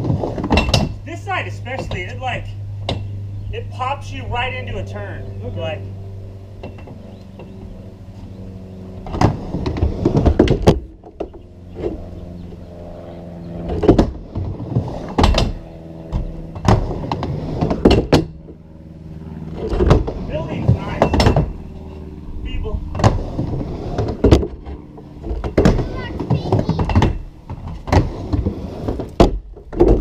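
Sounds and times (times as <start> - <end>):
skateboard wheels rumbling: 0.0 - 1.0, 9.0 - 12.6, 13.2 - 18.6, 19.5 - 30.0.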